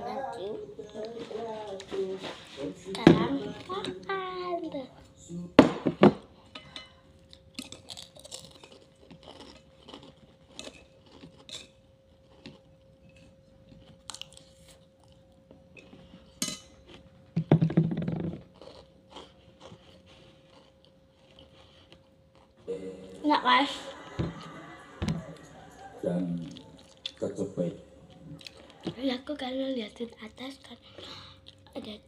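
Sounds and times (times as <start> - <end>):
faint steady hum: 0.0 - 32.0
crunchy food being chewed: 7.2 - 22.7, 26.2 - 27.3, 28.1 - 29.0.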